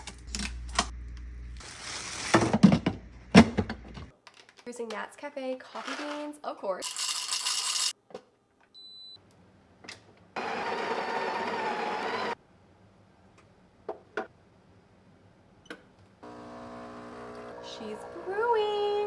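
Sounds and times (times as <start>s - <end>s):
grinder grinding coffee beans: 6.8s - 7.9s, 10.4s - 12.4s, 16.2s - 18.7s.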